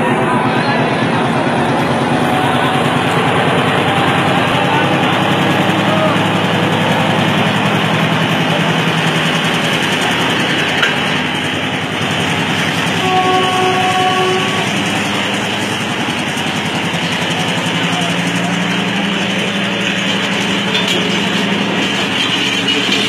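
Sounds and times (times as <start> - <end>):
diesel train passing: 0.0 - 23.0
train horn chord: 12.8 - 15.6.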